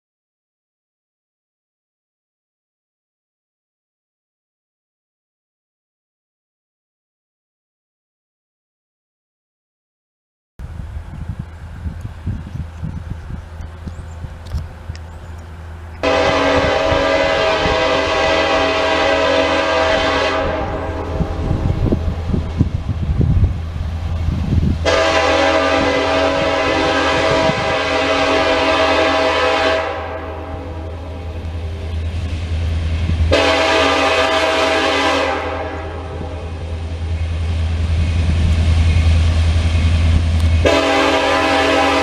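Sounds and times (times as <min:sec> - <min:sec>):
locomotive engine rumble: 0:10.6 - 0:42.0
locomotive air horn blasts: 0:16.0 - 0:22.3, 0:24.8 - 0:31.8, 0:33.2 - 0:37.0, 0:40.6 - 0:42.0.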